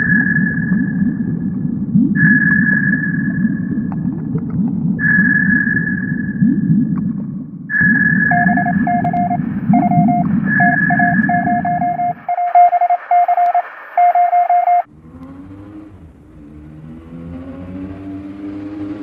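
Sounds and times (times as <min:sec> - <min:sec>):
low wavering hum: 0:00.0 - 0:12.2
morse code beeping tone: 0:02.2 - 0:03.8, 0:05.0 - 0:06.4, 0:07.7 - 0:14.9
high whistling tone: 0:02.2 - 0:03.9, 0:05.0 - 0:06.4, 0:07.7 - 0:14.8
radio hiss: 0:12.1 - 0:14.5
low engine sound: 0:14.9 - 0:19.0.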